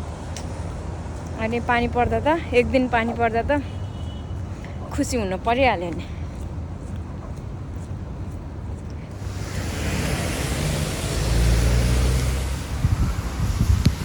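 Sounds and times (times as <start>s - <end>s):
wind buffeting microphone: 6.2s - 14.0s
low engine rumble: 9.1s - 14.0s
tyres hissing on wet road: 9.1s - 14.0s.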